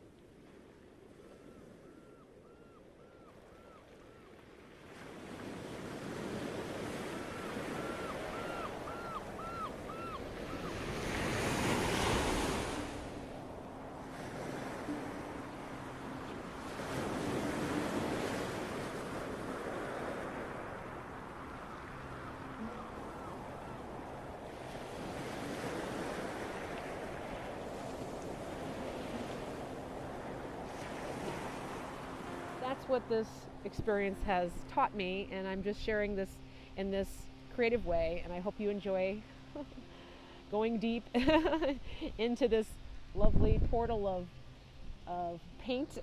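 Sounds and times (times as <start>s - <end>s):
ocean waves washing in: 4.5s - 32.8s
faint steady hum: 31.5s - 46.0s
wind on microphone: 42.8s - 45.1s.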